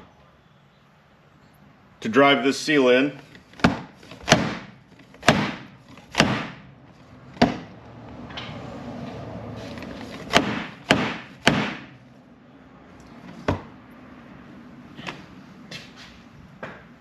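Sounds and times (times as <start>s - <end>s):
hammer striking plastic pipe: 3.6s - 6.6s, 7.4s - 7.7s, 10.3s - 11.9s.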